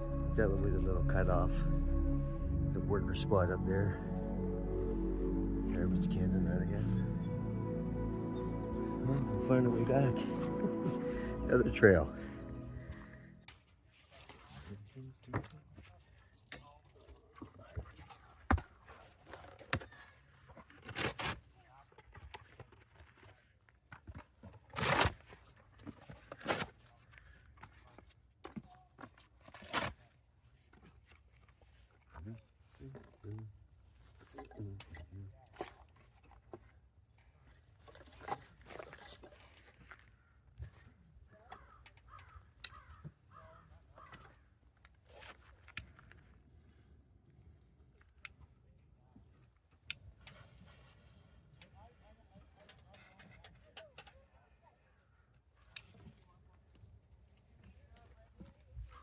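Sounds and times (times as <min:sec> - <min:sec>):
crow cawing: 0:41.4 - 0:44.4.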